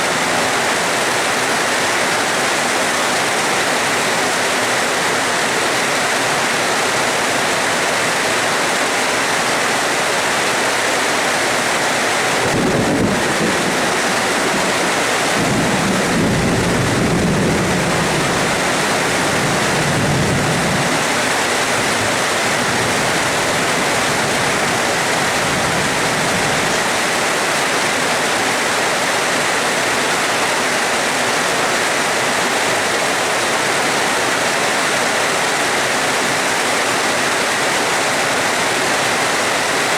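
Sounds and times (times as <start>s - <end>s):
heavy rain hissing: 0.0s - 39.9s
thunder clap: 12.4s - 21.0s
low rolling thunder: 12.4s - 26.9s.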